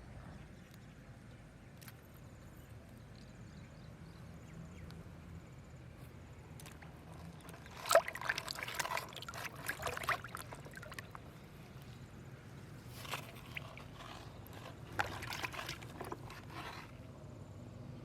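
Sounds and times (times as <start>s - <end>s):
low steady hum: 0.0s - 18.0s
water splashing and sloshing: 6.6s - 17.1s.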